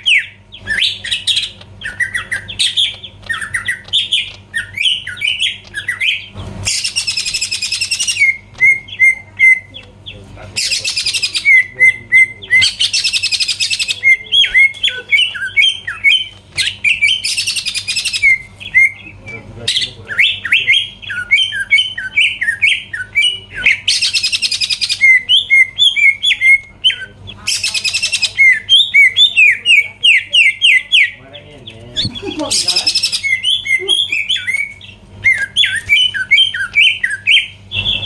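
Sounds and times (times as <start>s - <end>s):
bird singing whistled notes: 0.0s - 9.8s, 32.0s - 38.0s
high buzzing bird trill: 0.0s - 38.0s.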